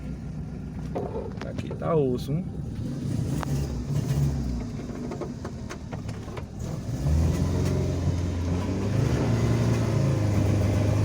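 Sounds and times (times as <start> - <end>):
car engine in low gear: 0.0 - 11.0
car knocking over bumps: 4.5 - 6.6.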